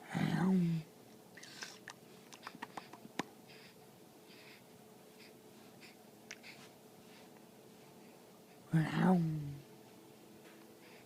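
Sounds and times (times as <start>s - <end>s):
baby lip and tongue clicks: 1.4s - 3.3s
baby soft breaths: 2.4s - 8.2s.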